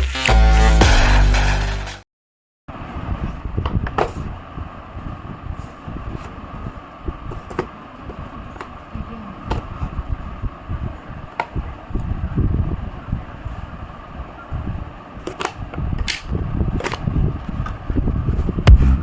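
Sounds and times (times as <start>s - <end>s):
microphone handling rumble: 18.3s - 19.0s.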